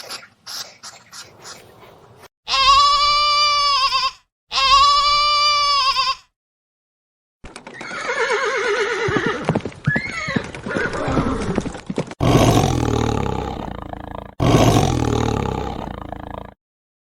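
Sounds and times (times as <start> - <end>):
horse whinnying: 7.7 - 11.6
deep animal roars: 12.2 - 16.6.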